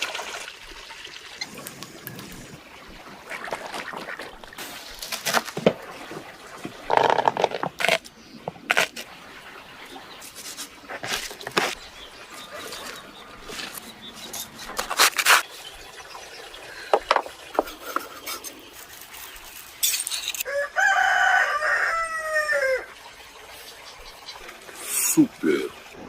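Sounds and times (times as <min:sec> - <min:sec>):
rooster crowing: 0:20.4 - 0:22.9.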